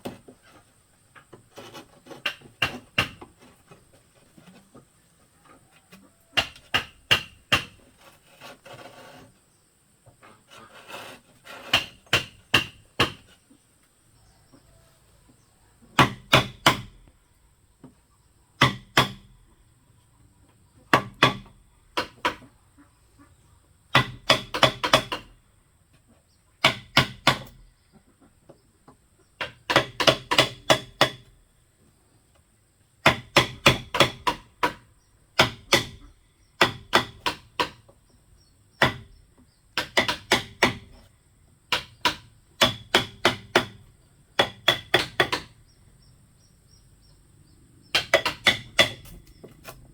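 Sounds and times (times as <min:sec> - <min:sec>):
bamboo struck with hand tool: 0:01.2 - 0:04.8, 0:05.9 - 0:09.2, 0:10.5 - 0:13.4, 0:15.9 - 0:17.0, 0:18.6 - 0:19.4, 0:20.9 - 0:22.5, 0:23.9 - 0:25.4, 0:26.6 - 0:27.6, 0:29.4 - 0:31.3, 0:33.0 - 0:37.9, 0:38.8 - 0:41.1, 0:41.7 - 0:43.8, 0:44.4 - 0:45.6, 0:47.9 - 0:49.9.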